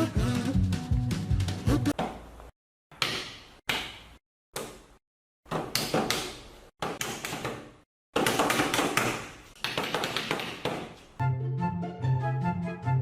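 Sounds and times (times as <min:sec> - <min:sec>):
music with steady bass line: 0:00.0 - 0:01.9
rapid taps and knocks: 0:08.2 - 0:11.0.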